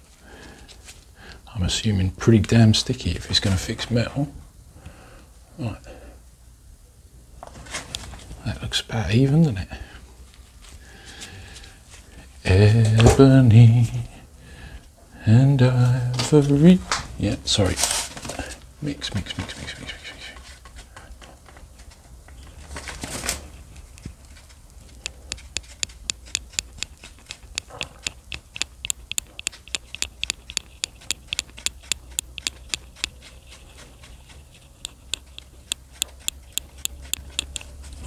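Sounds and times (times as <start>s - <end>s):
rustle: 16.9s - 25.1s
light sharp clicks: 24.7s - 37.8s.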